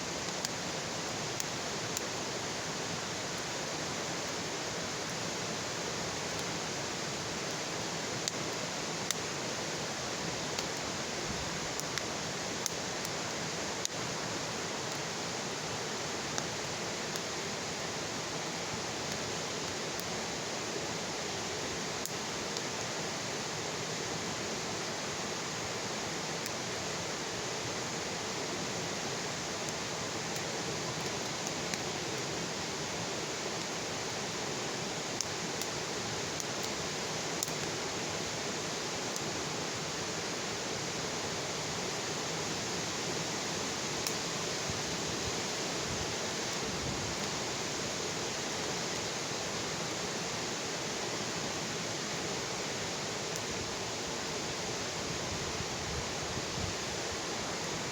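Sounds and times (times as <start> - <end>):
bonfire hissing: 0.0 - 57.9
wood popping in fire: 0.2 - 2.3, 9.9 - 14.2, 29.6 - 34.4, 35.0 - 38.4.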